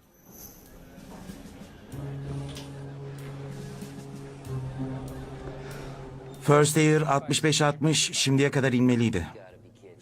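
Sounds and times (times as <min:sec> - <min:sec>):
low sustained music note: 0:02.0 - 0:07.0.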